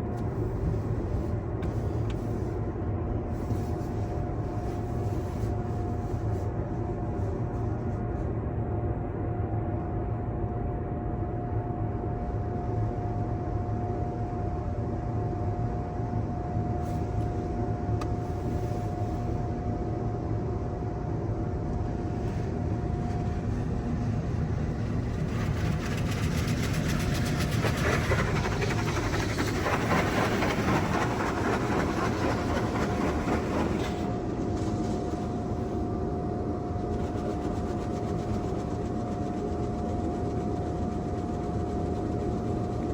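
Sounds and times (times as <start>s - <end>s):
thin steady whine: 0.0s - 42.9s
car wash rumble: 21.8s - 42.9s.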